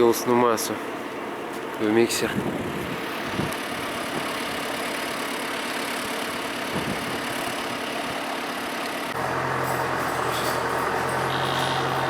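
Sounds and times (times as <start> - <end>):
tractor engine idling: 3.1 - 12.0
deep engine hum: 9.1 - 12.0.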